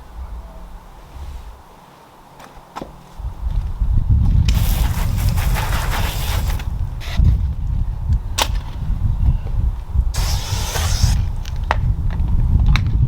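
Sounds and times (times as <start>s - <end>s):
wind rumble on microphone: 3.2s - 13.0s
spray bottle hiss: 10.2s - 11.3s.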